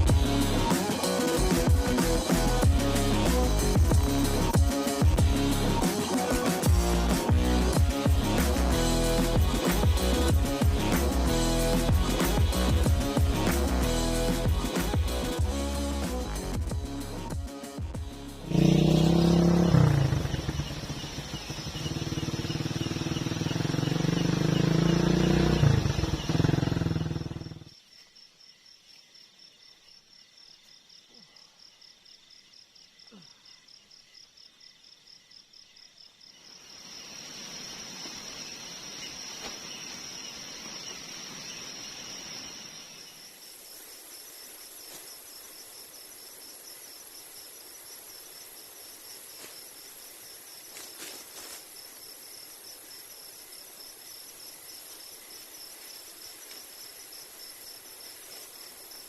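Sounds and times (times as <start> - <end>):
high insect call: 17.4 - 59.0
insects trilling: 17.4 - 59.0.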